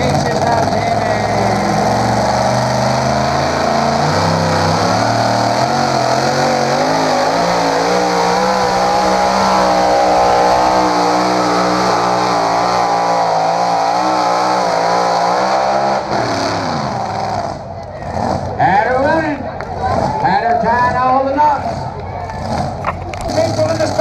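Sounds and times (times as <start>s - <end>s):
engine running hard under load: 0.0s - 18.6s.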